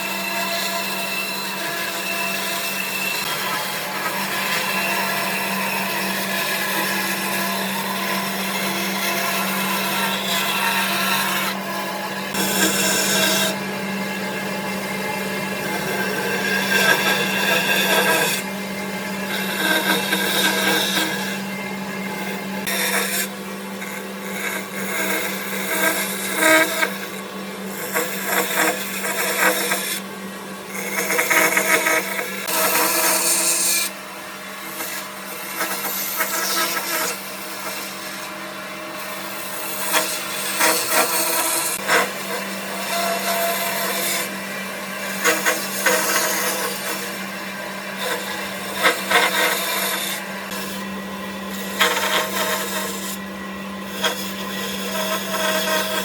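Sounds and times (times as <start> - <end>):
steady motor hum: 2.8 - 56.0
tools scraping wood: 12.3 - 13.6, 48.0 - 50.8.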